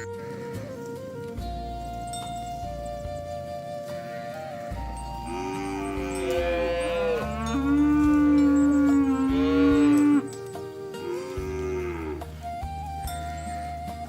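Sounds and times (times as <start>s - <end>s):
background music: 0.0s - 14.0s
cattle mooing: 4.0s - 12.3s.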